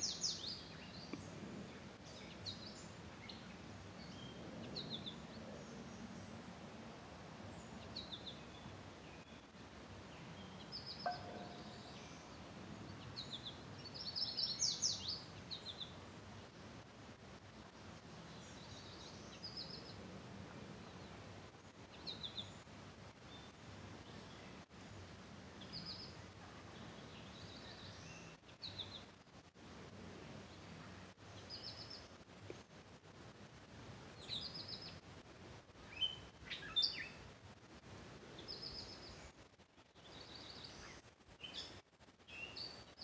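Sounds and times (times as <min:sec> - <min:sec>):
small birds chirping: 0:00.0 - 0:06.5, 0:07.4 - 0:16.6, 0:17.7 - 0:20.0, 0:20.8 - 0:25.0, 0:25.6 - 0:29.2, 0:30.4 - 0:32.8, 0:34.1 - 0:35.0, 0:35.8 - 0:37.3, 0:38.3 - 0:43.0
outdoor background hiss: 0:00.0 - 0:43.0.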